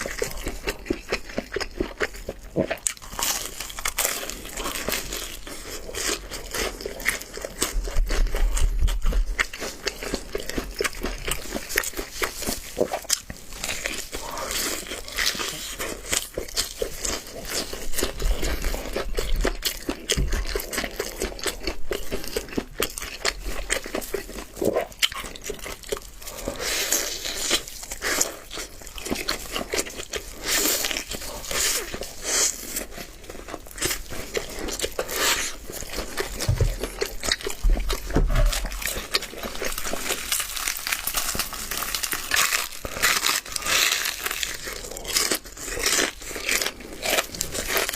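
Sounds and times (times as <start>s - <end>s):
crunching and chewing fried chicken: 0.0s - 47.9s.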